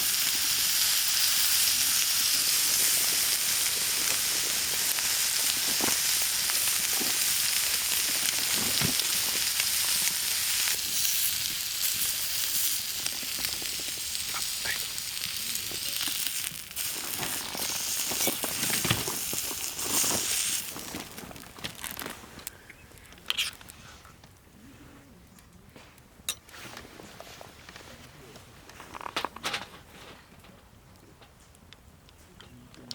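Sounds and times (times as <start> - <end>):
food sizzling in a pan: 0.0 - 21.2.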